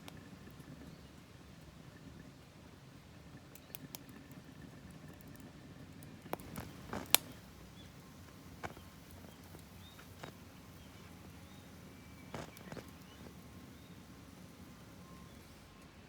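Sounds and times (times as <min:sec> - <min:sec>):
wood fire crackling: 0:00.0 - 0:16.0
sharp pops of fire: 0:06.2 - 0:15.6.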